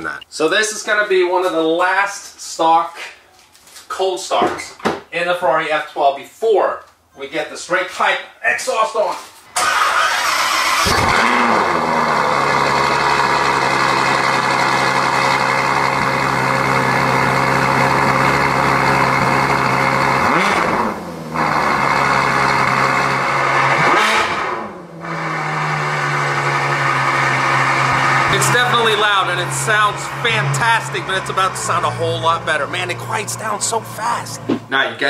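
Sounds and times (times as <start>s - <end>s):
car engine idling high: 10.7s - 23.6s, 27.1s - 34.6s.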